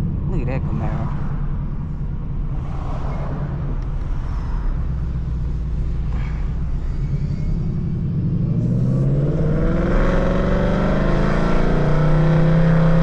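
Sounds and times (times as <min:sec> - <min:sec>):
car engine accelerating: 0:02.7 - 0:13.0.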